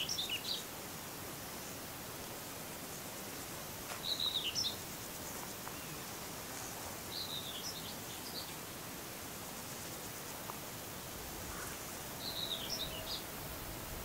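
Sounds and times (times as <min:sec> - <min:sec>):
steady background hiss: 0:00.0 - 0:14.0
small bird chirping: 0:04.0 - 0:06.1.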